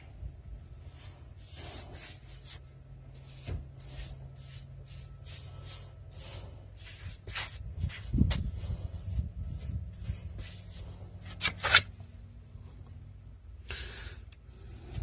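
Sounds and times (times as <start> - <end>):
paintbrush swishing on wood: 0.9 - 2.6, 3.2 - 10.9.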